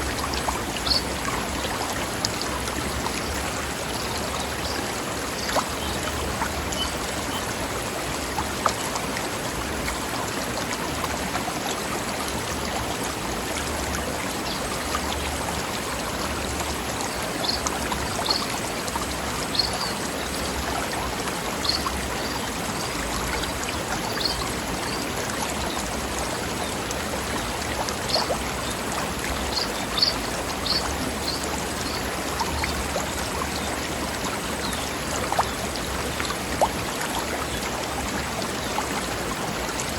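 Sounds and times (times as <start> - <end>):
water flowing over rocks: 0.0 - 39.9.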